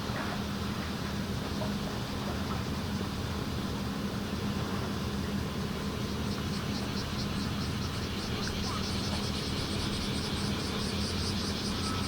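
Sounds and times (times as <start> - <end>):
steady low hum: 0.0 - 12.0
cicada buzzing: 6.0 - 12.0.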